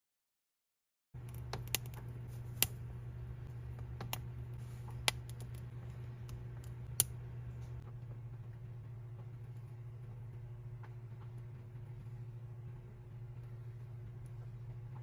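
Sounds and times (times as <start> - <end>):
steady low hum: 1.2 - 15.0.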